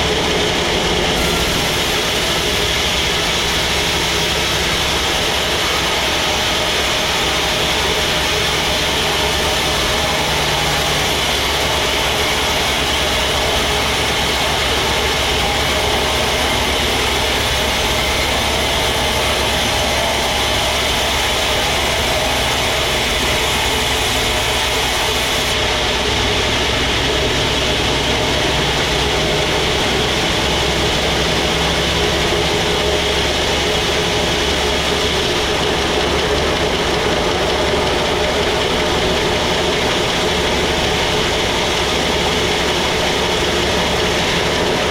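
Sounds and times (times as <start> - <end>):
sawmill machinery droning: 0.0 - 44.9
log being sawn: 1.1 - 25.6.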